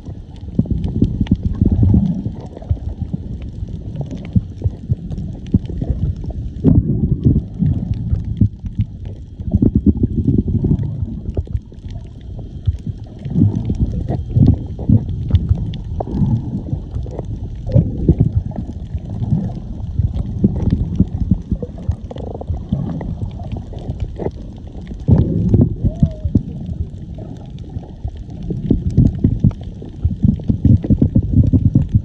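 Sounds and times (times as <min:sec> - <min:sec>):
underwater sloshing and bubbling: 0:00.0 - 0:32.0.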